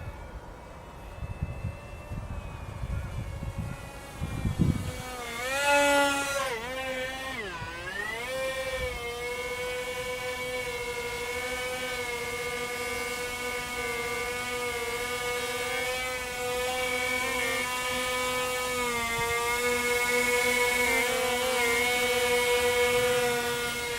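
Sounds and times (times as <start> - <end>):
electric motors and propellers whining: 0.0 - 23.9.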